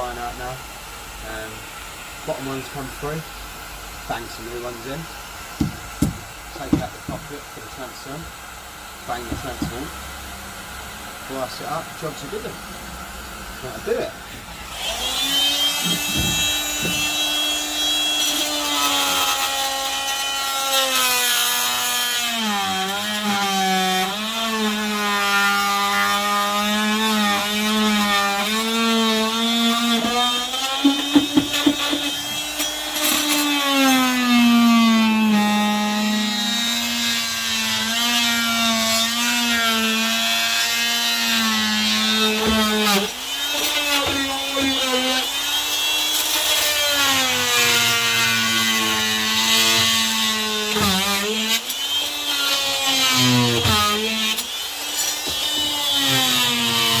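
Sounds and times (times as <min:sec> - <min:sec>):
power saw cutting wood: 0:00.0 - 0:57.0
sharp knocks: 0:05.6 - 0:07.3, 0:15.8 - 0:17.2, 0:30.8 - 0:32.4.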